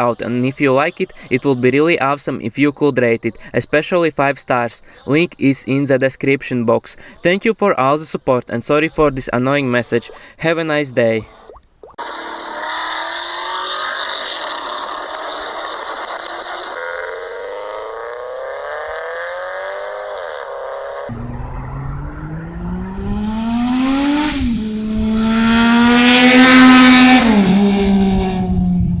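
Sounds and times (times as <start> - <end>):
engine revving: 12.0 - 29.0
deeper engine revving: 20.8 - 29.0.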